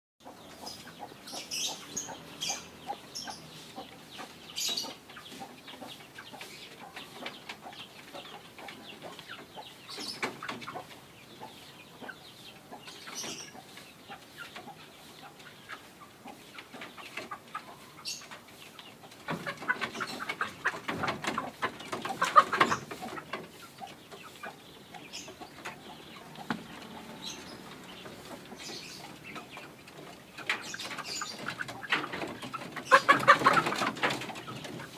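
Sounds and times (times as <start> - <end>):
chickens clucking: 0.2 - 34.9.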